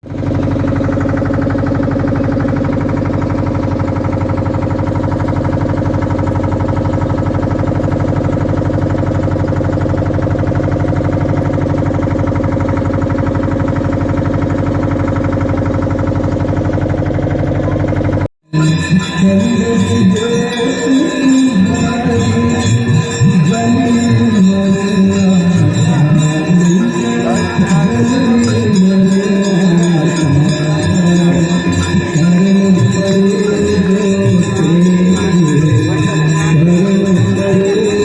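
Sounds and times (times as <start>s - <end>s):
boat engine running: 0.0s - 38.0s.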